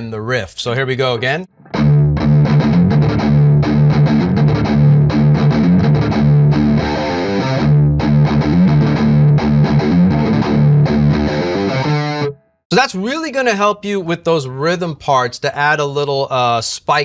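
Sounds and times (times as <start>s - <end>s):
distorted electric guitar riff: 1.5s - 12.6s.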